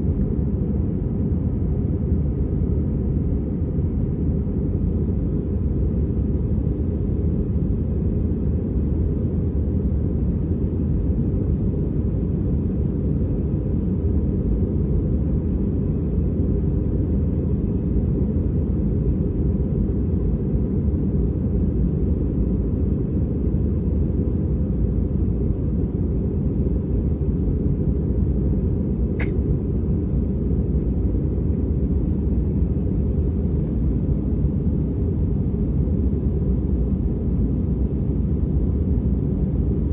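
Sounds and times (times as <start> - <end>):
airplane cabin engine rumble: 0.0 - 39.9
faint click: 29.2 - 29.4.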